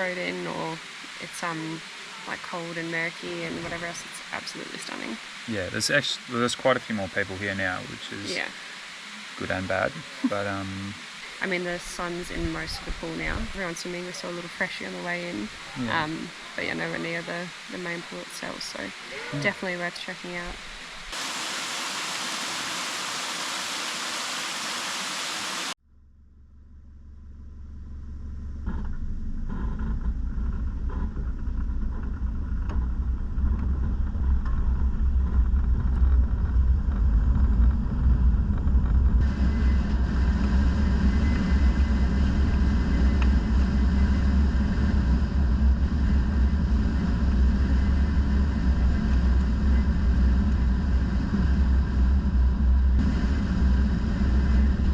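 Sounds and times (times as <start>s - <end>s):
truck driving rumble: 2.4s - 8.7s, 9.4s - 13.8s
waterfall rushing water: 21.1s - 25.8s.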